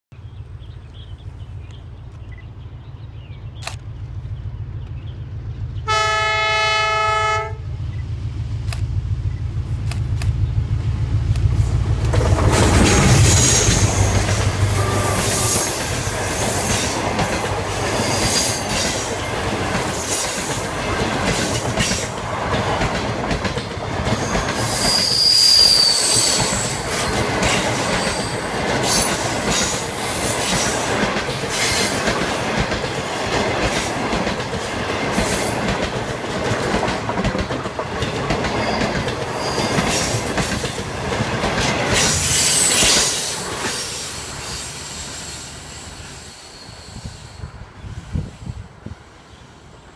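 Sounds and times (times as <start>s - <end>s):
train wheels clattering on rails: 8.6s - 44.4s
high wheel squeal: 13.2s - 17.0s, 24.2s - 26.9s, 42.0s - 47.5s.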